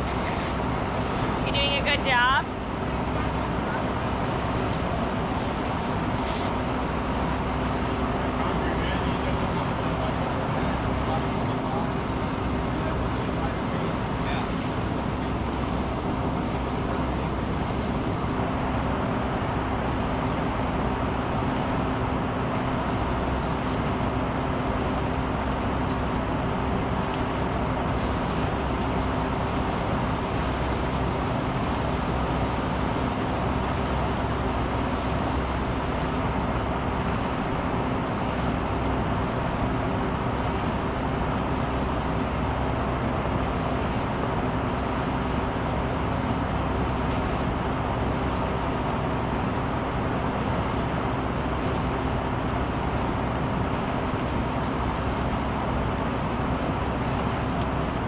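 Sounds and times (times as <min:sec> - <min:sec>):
motor humming: 0:00.0 - 0:18.4, 0:22.8 - 0:24.1, 0:28.0 - 0:36.3.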